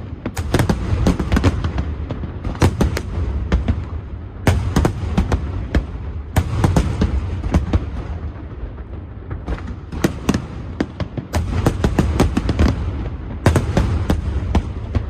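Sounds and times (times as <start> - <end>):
fireworks cracks and bangs: 0.0 - 15.0.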